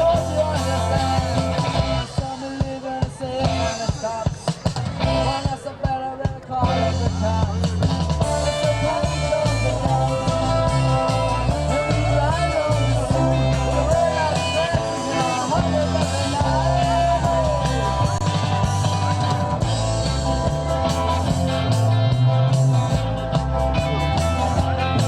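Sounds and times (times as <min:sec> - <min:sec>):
person singing: 0:00.0 - 0:19.3
bass guitar: 0:00.0 - 0:25.0
drum kit: 0:00.0 - 0:25.0
electric guitar: 0:00.0 - 0:25.0.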